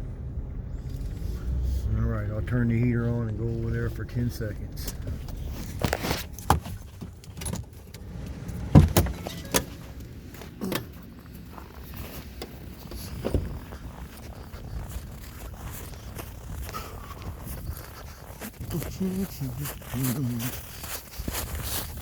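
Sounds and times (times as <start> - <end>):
car engine running: 0.0 - 20.8
knocks and clicks of handling: 4.8 - 11.0.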